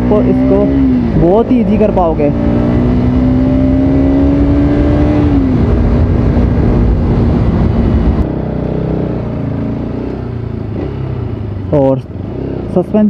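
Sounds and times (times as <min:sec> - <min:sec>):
wind rumble on microphone: 0:00.0 - 0:09.5
motorcycle engine running: 0:00.0 - 0:13.0.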